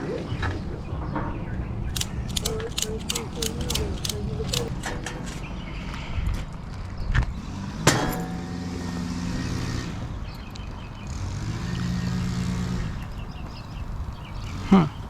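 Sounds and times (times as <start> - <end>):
motor running steadily: 7.4 - 15.0.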